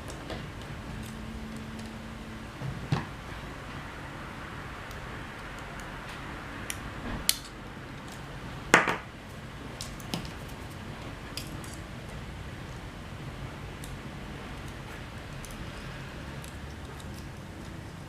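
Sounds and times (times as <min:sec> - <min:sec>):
small parts and tools clicking: 0:13.8 - 0:17.9.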